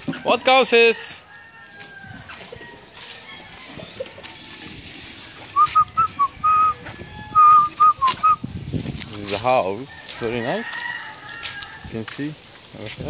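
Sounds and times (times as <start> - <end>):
bird whistling notes: 5.5 - 8.4.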